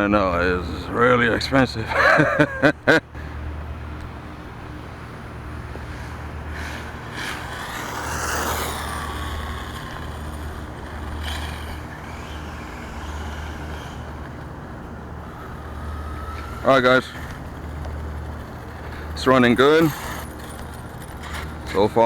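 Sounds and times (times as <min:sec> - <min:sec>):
rc truck motor rumble: 0:00.0 - 0:22.0.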